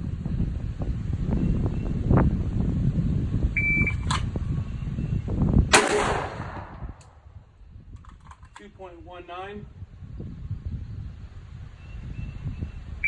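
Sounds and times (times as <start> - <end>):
wind rumbling on microphone: 0.0 - 13.0
sharp crack: 5.7 - 7.2.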